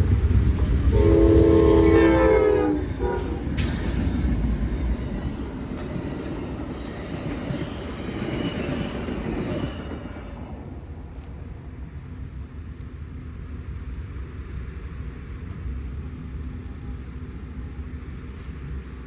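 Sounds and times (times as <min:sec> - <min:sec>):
train rumbling on rails: 0:00.0 - 0:19.0
train horn: 0:00.8 - 0:03.6.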